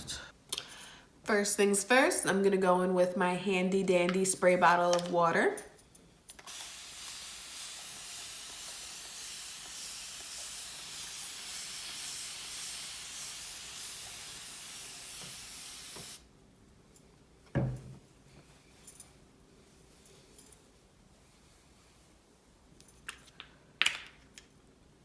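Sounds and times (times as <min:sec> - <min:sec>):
spray bottle hissing: 0:06.5 - 0:16.2.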